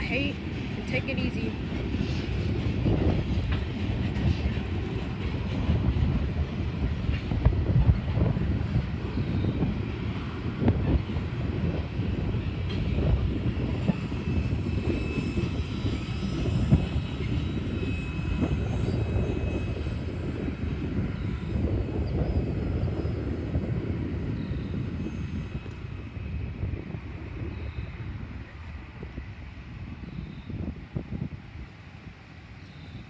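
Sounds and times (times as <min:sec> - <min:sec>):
freight train wheels rumbling: 0:00.0 - 0:33.0.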